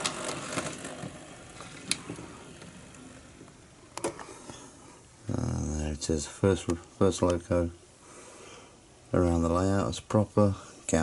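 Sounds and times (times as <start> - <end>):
model train motor whirring: 0.0 - 3.5.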